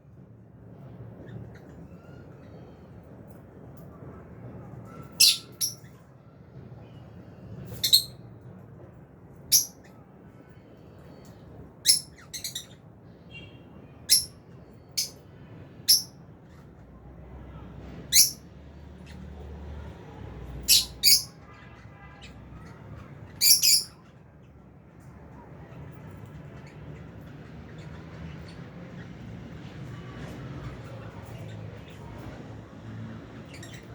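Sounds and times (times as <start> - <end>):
lovebirds chirping: 5.1 - 5.9, 23.3 - 24.0.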